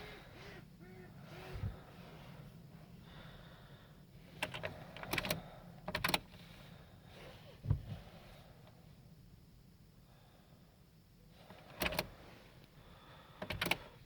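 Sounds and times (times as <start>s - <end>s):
low steady hum: 0.0s - 14.0s
sharp clicks and rattles: 4.4s - 6.4s, 11.5s - 12.1s, 13.4s - 13.9s
dull thump: 7.6s - 8.0s.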